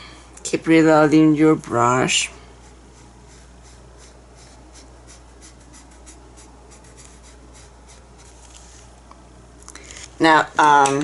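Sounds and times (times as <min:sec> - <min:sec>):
paintbrush brushing strokes: 0:02.1 - 0:08.9.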